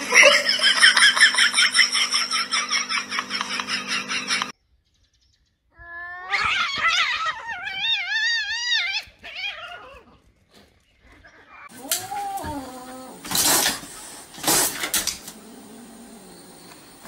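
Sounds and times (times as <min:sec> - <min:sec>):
cat yowling: 0:05.8 - 0:10.1, 0:11.6 - 0:13.3.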